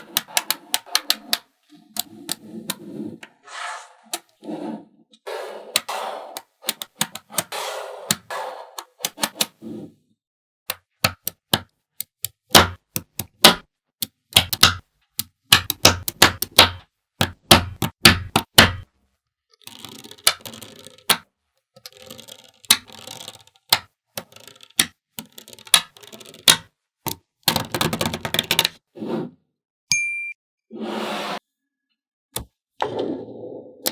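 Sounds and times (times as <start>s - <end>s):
magnetic balls clicking together: 0.0s - 2.8s, 5.7s - 7.5s, 10.7s - 18.9s, 19.6s - 28.8s.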